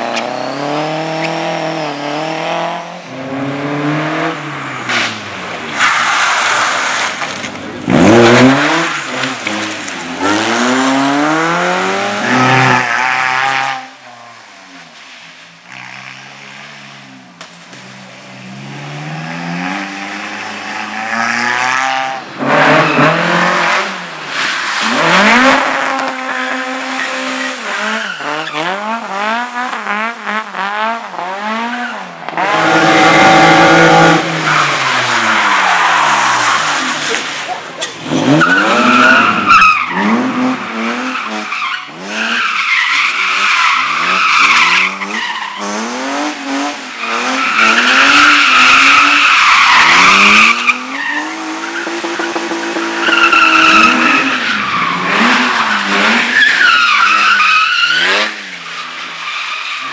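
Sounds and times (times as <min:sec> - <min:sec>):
car engine revving: 0:00.0 - 0:14.0, 0:15.7 - 0:59.1
tyre squeal: 0:53.0 - 0:59.9.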